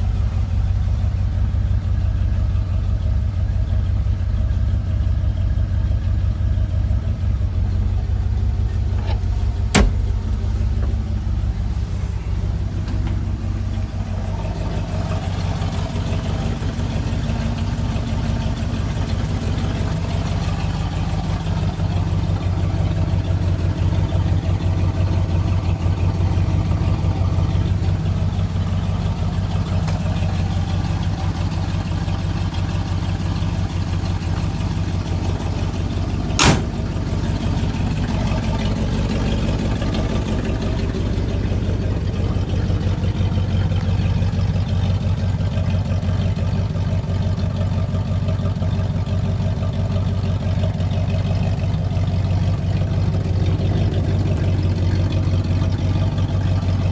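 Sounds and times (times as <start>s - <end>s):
truck engine running: 0.0s - 56.9s
sharp click: 36.4s - 36.8s.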